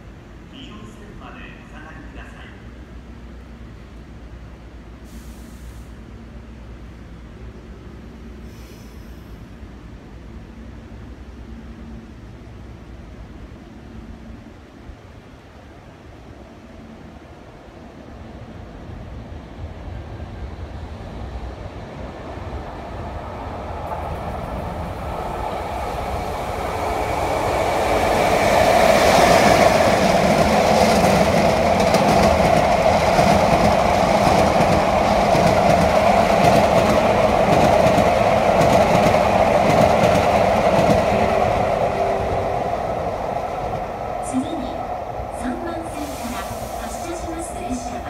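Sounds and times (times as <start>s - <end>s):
train wheels rumbling on rails: 18.0s - 48.0s.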